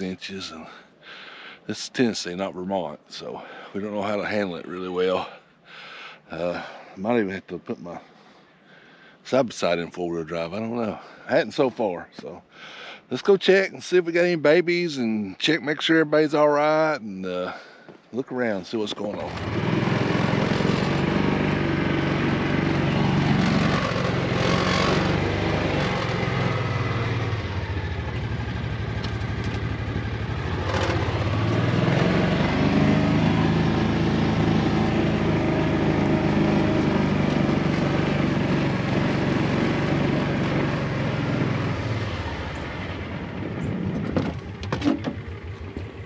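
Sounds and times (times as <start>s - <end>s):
utility vehicle engine running: 19.0s - 46.0s.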